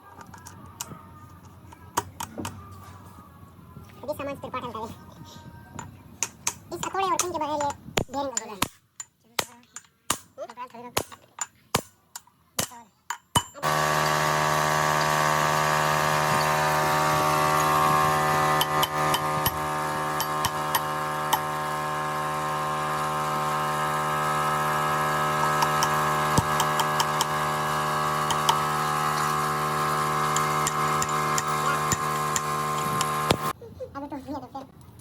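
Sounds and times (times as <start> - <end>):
power tool motor running: 13.6 - 33.6.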